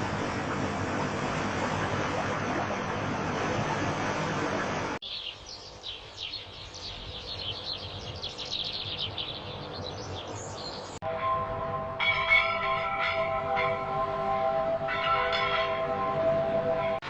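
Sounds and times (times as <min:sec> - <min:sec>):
steady rushing noise: 0:00.0 - 0:08.2
birds chirping: 0:05.0 - 0:11.0.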